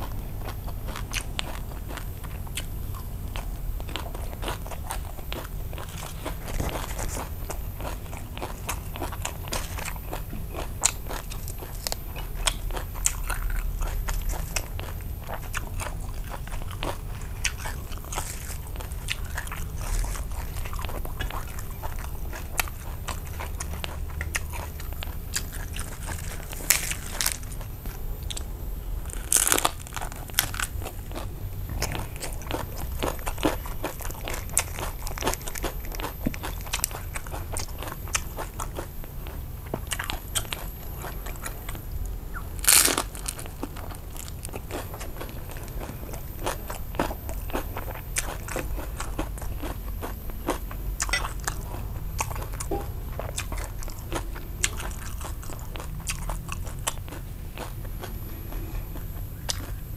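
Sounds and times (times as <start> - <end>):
chewing and crunching food: 0.0 - 59.9
loud crunching bites: 15.5 - 38.9, 39.6 - 49.8.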